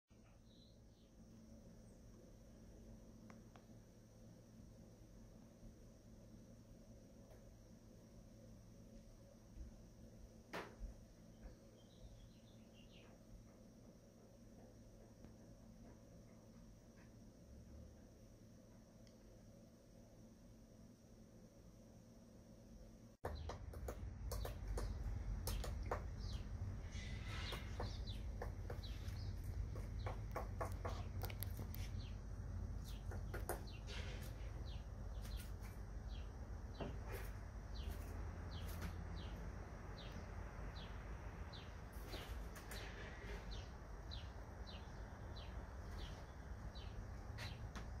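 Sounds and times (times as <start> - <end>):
woodpecker pecking on wood: 23.2 - 26.5, 27.5 - 32.0, 32.9 - 33.9.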